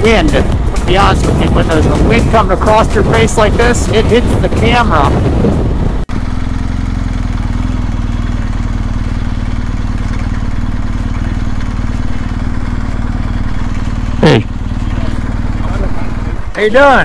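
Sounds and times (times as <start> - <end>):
motorcycle engine running slowly: 0.0 - 17.0
wind noise on camera: 0.3 - 6.1.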